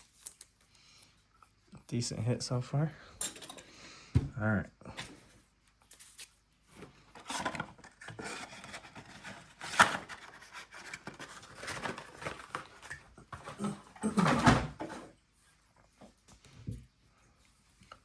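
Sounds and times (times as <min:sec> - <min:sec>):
rustling of card wrappers: 0:05.1 - 0:13.8.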